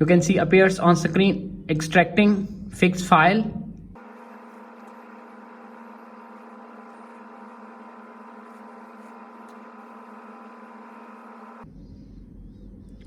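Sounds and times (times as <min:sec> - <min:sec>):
steady multi-pitched hum: 0:00.0 - 0:13.0.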